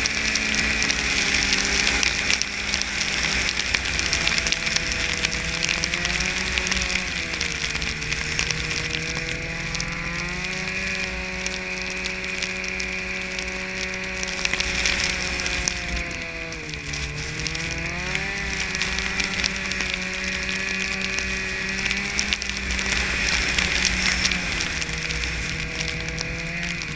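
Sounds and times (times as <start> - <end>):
snowmobile engine running: 0.0 - 26.9.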